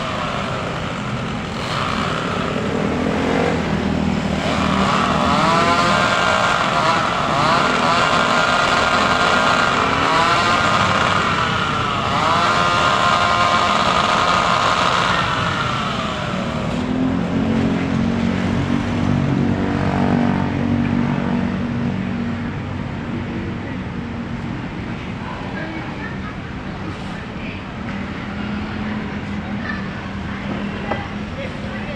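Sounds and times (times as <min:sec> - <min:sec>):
chainsaw cutting branches: 0:00.0 - 0:17.7.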